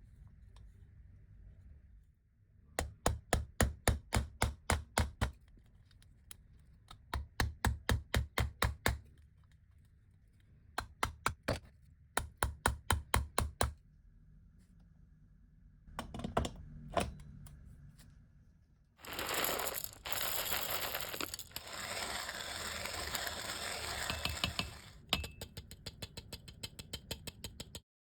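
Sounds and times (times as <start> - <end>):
hand-cranked coffee grinder clicking: 19.0 - 25.0.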